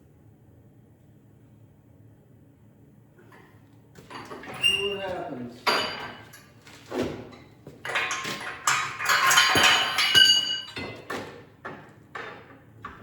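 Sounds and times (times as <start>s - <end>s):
metal tools clanking: 4.1s - 6.6s, 7.8s - 11.0s.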